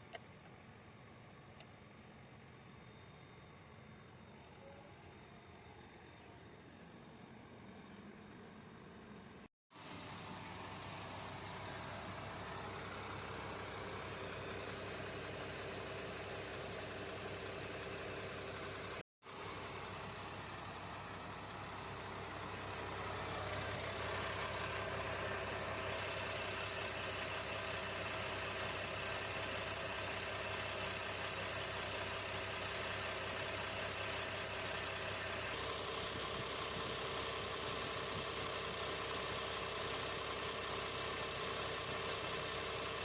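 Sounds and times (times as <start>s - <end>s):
diesel bus engine idling: 3.6s - 43.0s.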